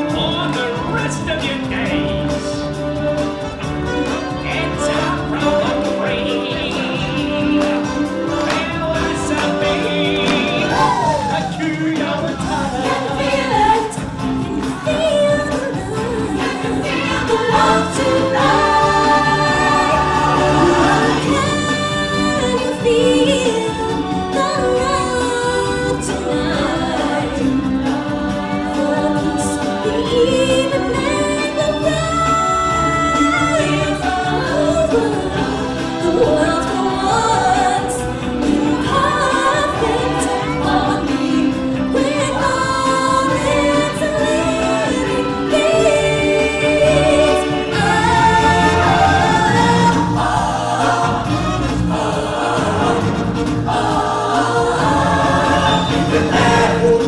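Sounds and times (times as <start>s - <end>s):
backing band: 0.0s - 57.0s
choir singing long notes: 0.0s - 57.0s.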